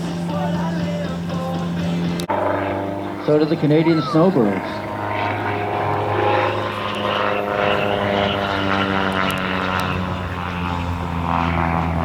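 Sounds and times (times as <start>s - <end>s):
propeller plane flying by: 0.0s - 12.0s
announcer speaking: 3.2s - 4.9s.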